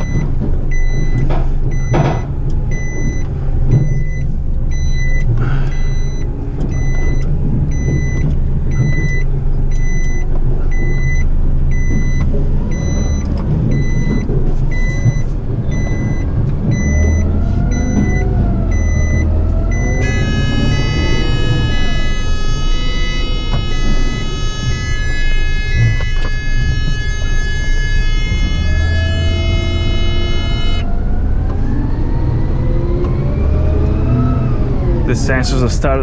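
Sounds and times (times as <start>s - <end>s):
electronic warning beeps: 0.0s - 30.9s
diesel truck engine running: 0.0s - 36.0s
wavering tone: 16.8s - 31.1s.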